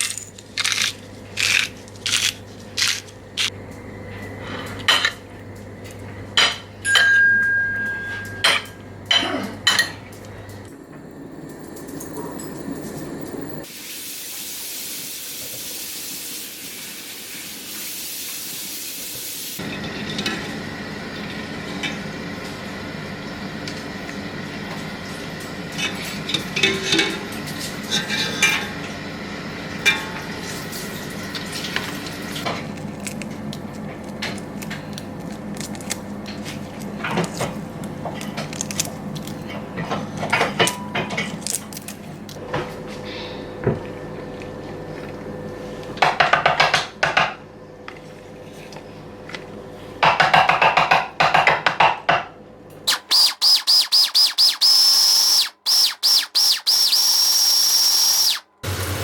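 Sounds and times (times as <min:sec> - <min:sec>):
low background hum: 0:00.0 - 0:13.7
utensils clinking on dishes: 0:06.4 - 0:13.4, 0:25.7 - 0:28.8.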